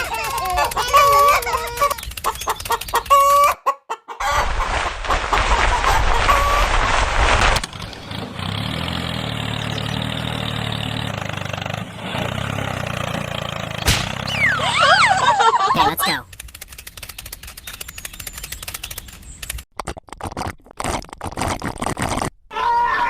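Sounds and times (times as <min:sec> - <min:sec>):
chickens clucking: 0:00.0 - 0:06.6.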